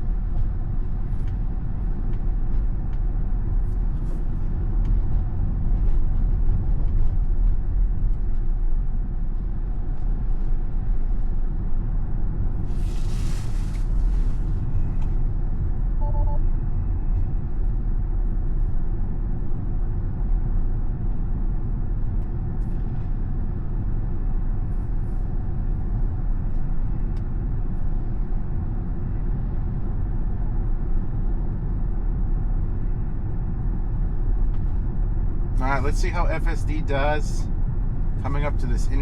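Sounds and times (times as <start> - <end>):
road and wind noise in car: 0.0 - 39.0.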